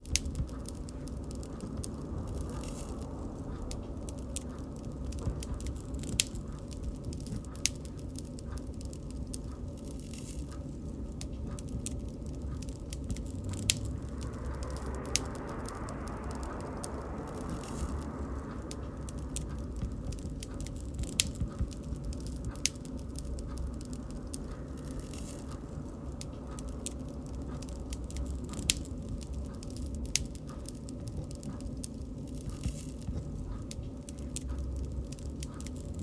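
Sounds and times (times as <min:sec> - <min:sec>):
bonfire crackling: 0:00.0 - 0:36.0
faint hiss: 0:00.0 - 0:36.0.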